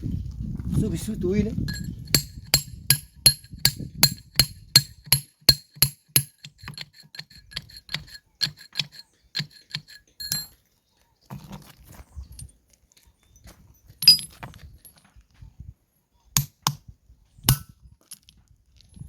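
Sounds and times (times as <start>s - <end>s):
hammer striking chisel on stone: 1.7s - 10.6s, 16.4s - 16.8s, 17.5s - 17.7s.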